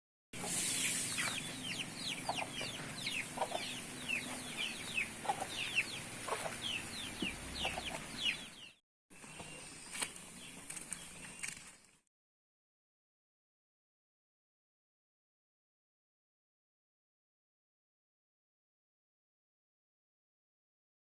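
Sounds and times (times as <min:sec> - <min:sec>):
steady hiss: 0:00.4 - 0:01.4
chickens chirping and clucking: 0:00.4 - 0:11.4.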